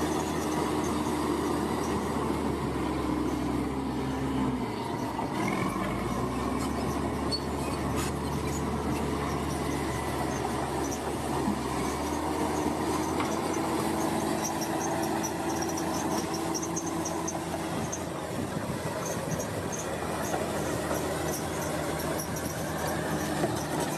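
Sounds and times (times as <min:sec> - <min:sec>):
construction machinery engine rumbling: 0:00.0 - 0:23.9.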